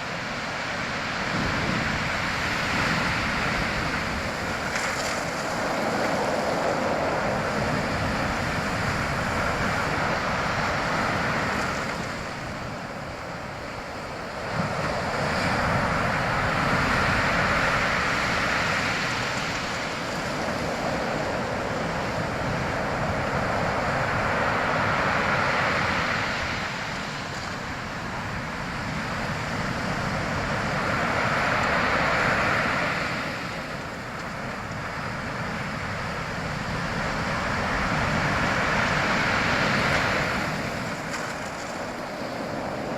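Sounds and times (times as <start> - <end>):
sea waves washing onto shore: 0.0 - 42.9.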